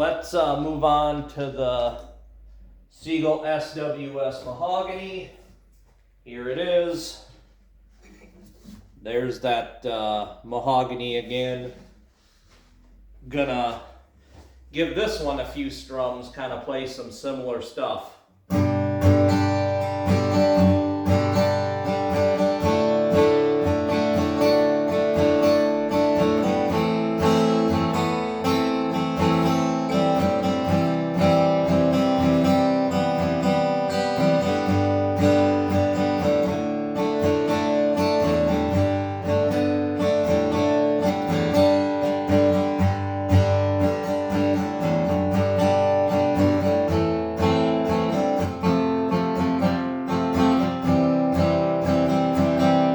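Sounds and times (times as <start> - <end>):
acoustic guitar strumming chords: 18.5 - 52.9.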